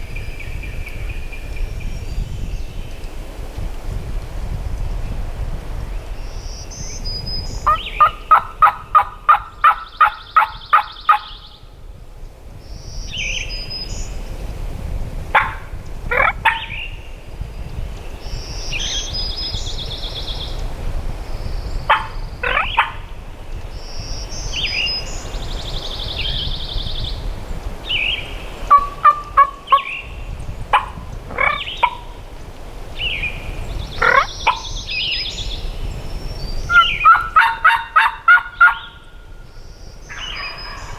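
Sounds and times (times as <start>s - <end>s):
small birds singing: 0.0s - 4.0s, 4.7s - 40.9s
wind on microphone: 0.0s - 40.9s
turkey yelps: 7.7s - 11.3s, 15.4s - 16.7s, 21.9s - 23.1s, 28.7s - 29.9s, 30.7s - 32.1s, 34.0s - 34.6s, 36.7s - 39.0s, 40.1s - 40.9s
turkeys gobbling: 7.7s - 11.3s, 15.4s - 16.6s, 21.9s - 23.1s, 28.7s - 29.9s, 30.7s - 32.2s, 34.0s - 34.6s, 36.7s - 39.0s, 40.1s - 40.9s.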